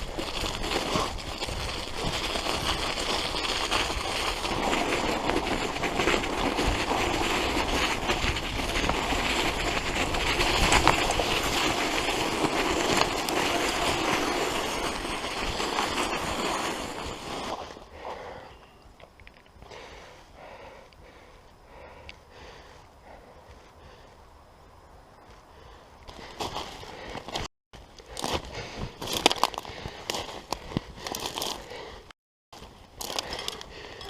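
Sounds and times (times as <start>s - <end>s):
bike tyres crunching through snow: 0.0s - 18.4s, 25.2s - 34.0s.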